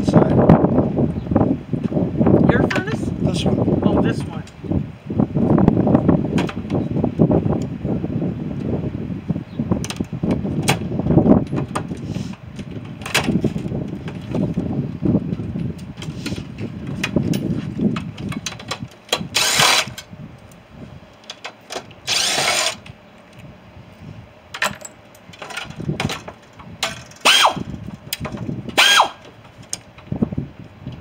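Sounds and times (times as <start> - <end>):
power tool whining: 19.1 - 20.1, 21.8 - 23.0, 26.9 - 27.7, 28.7 - 29.3.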